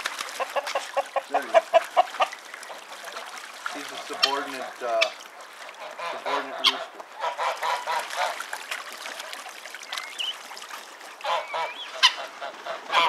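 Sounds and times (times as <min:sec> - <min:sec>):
geese honking: 0:05.8 - 0:08.4, 0:11.2 - 0:13.0.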